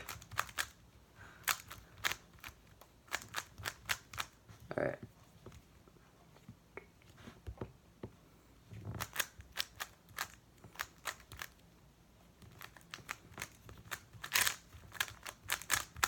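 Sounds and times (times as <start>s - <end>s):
puzzle cube clicking: 0.0s - 0.8s, 1.4s - 4.4s, 9.0s - 11.6s, 12.4s - 16.0s.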